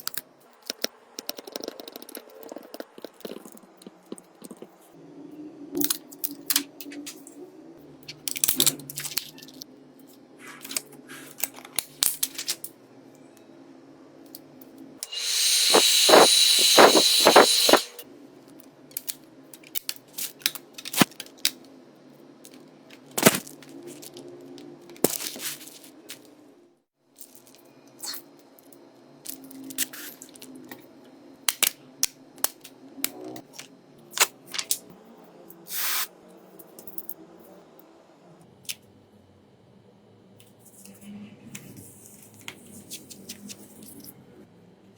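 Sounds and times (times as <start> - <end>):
small tools clicking and tapping: 0.0 - 4.7
small power tool whining: 15.0 - 18.0.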